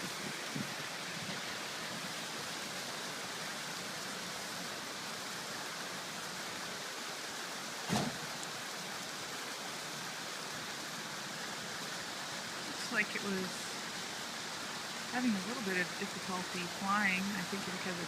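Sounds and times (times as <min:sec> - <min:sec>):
short low thump: 0:07.9 - 0:08.2.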